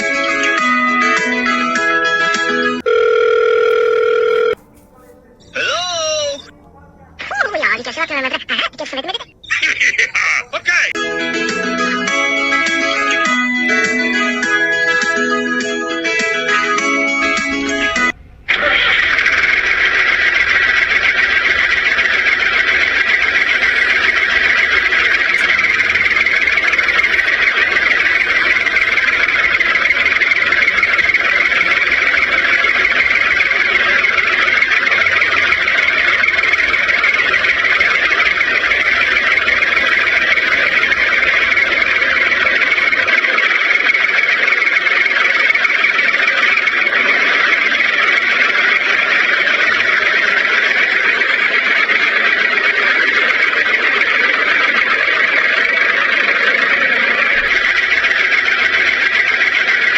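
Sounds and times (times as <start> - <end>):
electric motor whirring: 17.2 - 44.8.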